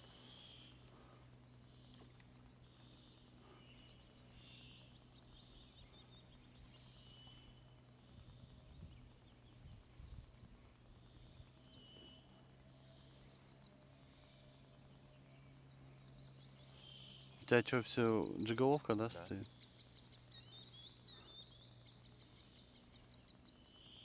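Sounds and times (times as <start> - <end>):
distant birdsong: 0.0 - 24.0
low steady hum: 0.0 - 24.0.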